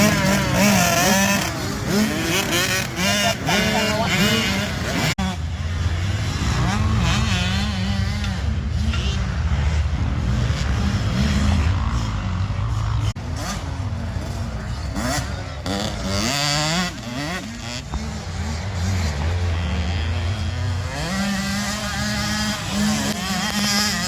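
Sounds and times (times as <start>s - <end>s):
mix of voices: 0.0s - 5.1s
dirt bike engines: 0.0s - 24.0s.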